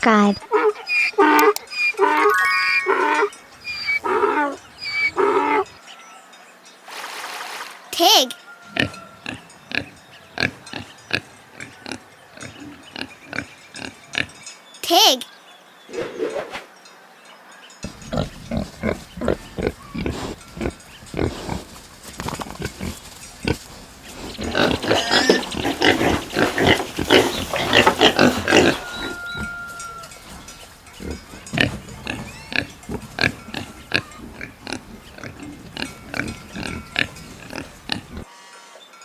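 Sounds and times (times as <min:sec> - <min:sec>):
pigs grunting: 0:03.6 - 0:05.8, 0:08.7 - 0:14.4, 0:17.8 - 0:38.3.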